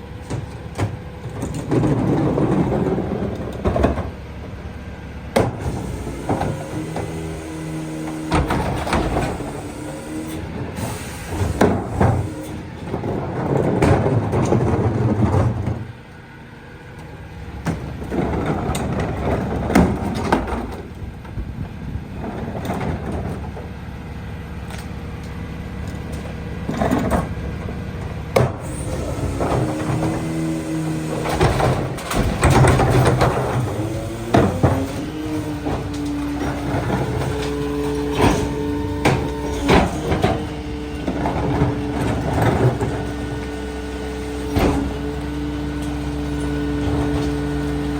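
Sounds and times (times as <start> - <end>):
truck engine humming: 23.4 - 47.9.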